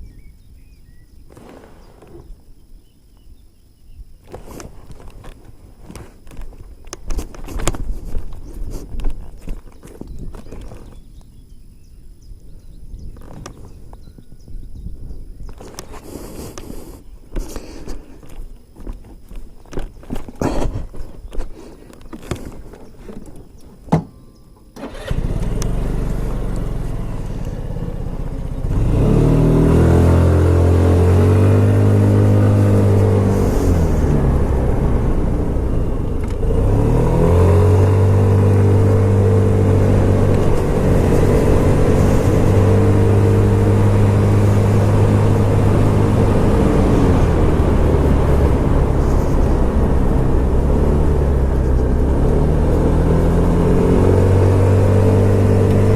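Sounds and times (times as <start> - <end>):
scooter engine running: 24.8 - 55.9.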